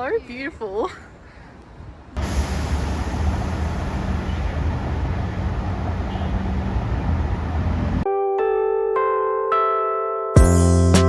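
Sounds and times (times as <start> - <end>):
train rumbling: 2.2 - 8.0.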